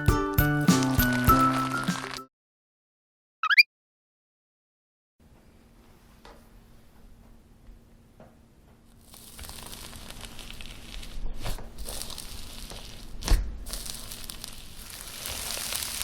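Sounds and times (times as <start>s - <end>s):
sticky slime crackling: 9.0s - 16.0s
slime popping: 11.8s - 16.0s.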